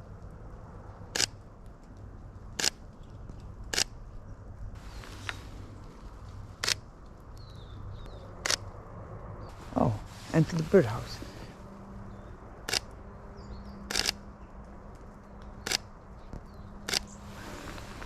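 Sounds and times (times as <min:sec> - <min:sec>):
camera shutter clicks: 0:13.9 - 0:14.2, 0:16.9 - 0:17.1.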